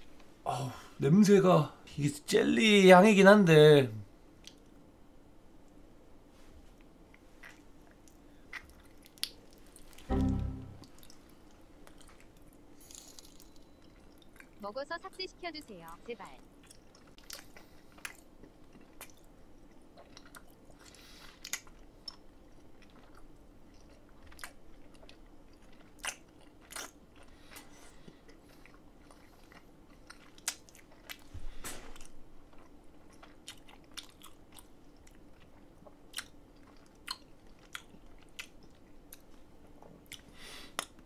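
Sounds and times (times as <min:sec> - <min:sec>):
wet sticky chewing: 0:07.4 - 0:10.0, 0:10.9 - 0:15.8, 0:16.5 - 0:31.3, 0:31.9 - 0:41.0.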